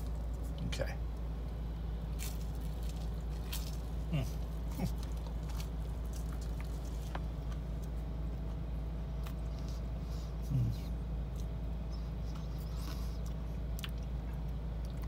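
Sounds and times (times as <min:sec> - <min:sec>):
car cabin hum: 0:00.0 - 0:12.6
chewing and mouth clicks: 0:02.2 - 0:08.6, 0:09.2 - 0:09.9, 0:10.8 - 0:15.0
man humming mm: 0:10.4 - 0:11.0.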